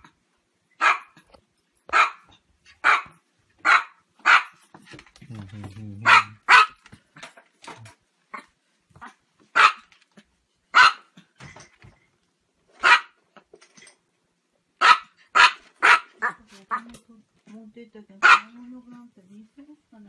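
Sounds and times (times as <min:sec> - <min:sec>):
small dog yapping: 0:00.8 - 0:01.2, 0:01.9 - 0:04.6, 0:06.0 - 0:06.8, 0:08.3 - 0:09.9, 0:10.8 - 0:11.1, 0:12.8 - 0:13.2, 0:14.8 - 0:16.9.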